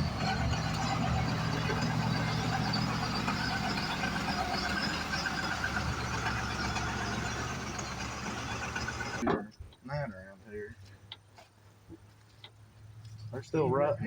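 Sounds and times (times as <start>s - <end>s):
truck engine humming: 0.0s - 9.3s.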